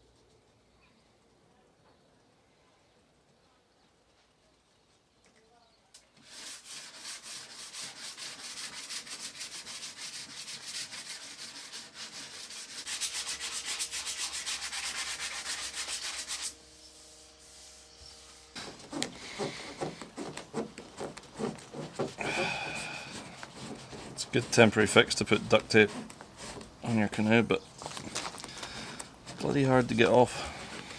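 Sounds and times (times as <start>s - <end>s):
sanding wooden canoe hull: 6.2s - 27.7s, 28.7s - 30.9s
short rubbing strokes: 6.2s - 30.9s.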